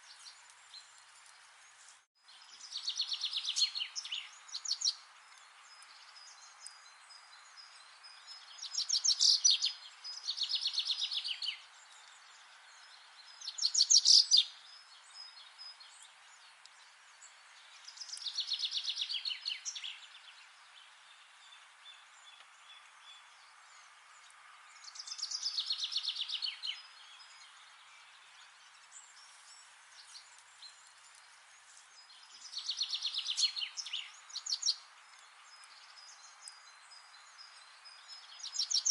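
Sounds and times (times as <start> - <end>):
background hiss: 0.0 - 38.9
songbird trilling: 8.6 - 11.6, 13.5 - 14.5.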